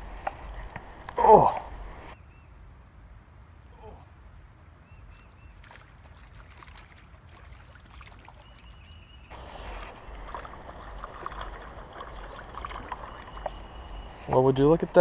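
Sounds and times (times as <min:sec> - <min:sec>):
creek water running: 0:03.8 - 0:15.0.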